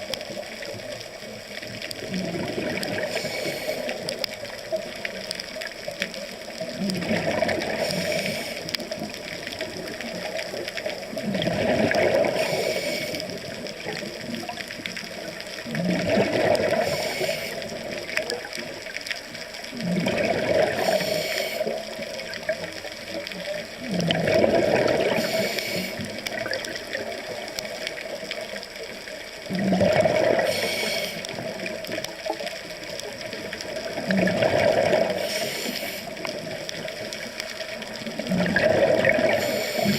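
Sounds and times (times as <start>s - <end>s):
exhaled bubbles rushing: 0.0s - 18.9s, 19.6s - 39.9s
regulator inhalation hiss: 3.0s - 4.1s, 7.8s - 8.8s, 12.3s - 13.4s, 16.8s - 17.8s, 20.8s - 21.8s, 25.1s - 26.2s, 30.4s - 31.3s, 35.2s - 36.3s, 39.4s - 39.9s.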